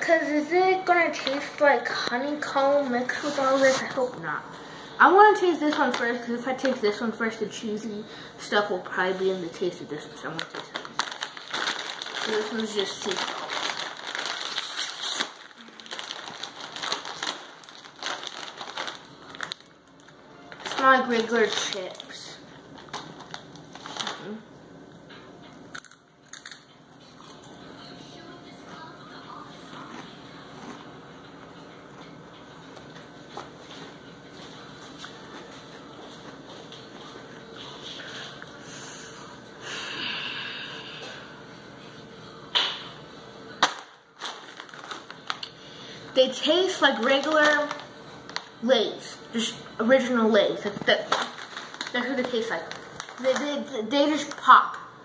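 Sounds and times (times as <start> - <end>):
potato chips crunching: 10.3 - 24.4, 25.6 - 27.6, 43.6 - 45.6, 51.0 - 54.5
chewing crunchy chips: 25.4 - 27.6.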